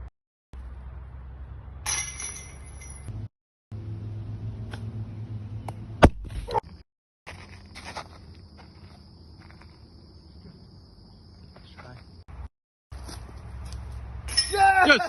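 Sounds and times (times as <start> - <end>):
outdoor background noise: 0.0 - 15.0
disc striking basket chains: 1.8 - 3.3, 14.2 - 14.8.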